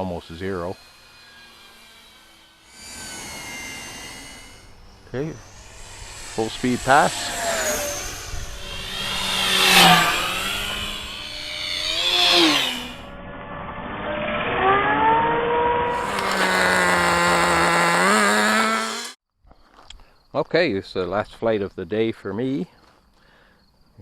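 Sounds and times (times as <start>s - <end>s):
model airplane motor whining: 0.4s - 13.1s, 15.9s - 19.2s.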